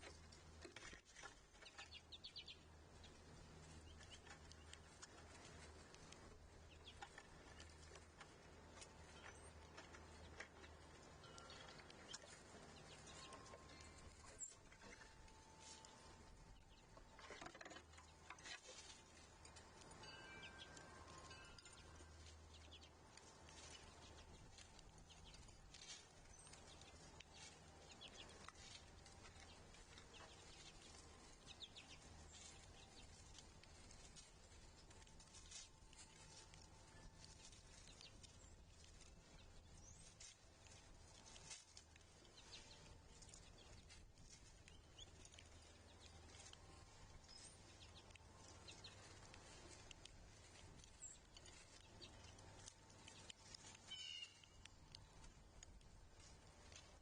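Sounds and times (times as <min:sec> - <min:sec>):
bird chirps: 0:50.9 - 0:55.1.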